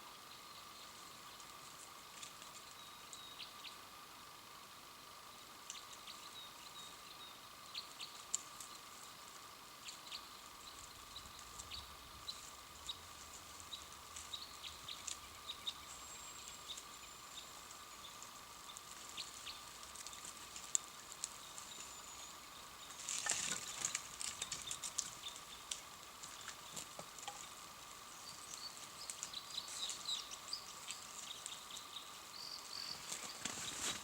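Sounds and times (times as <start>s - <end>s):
campfire crackling: 8.2s - 34.0s.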